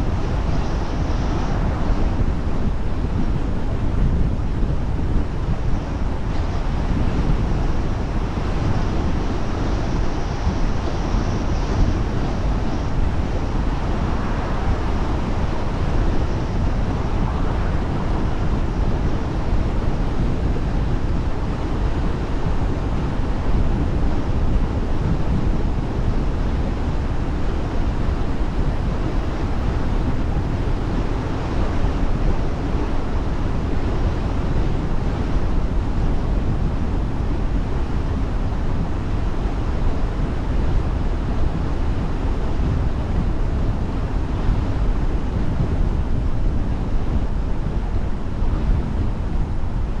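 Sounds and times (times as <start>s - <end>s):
car road and wind noise: 0.0s - 50.0s.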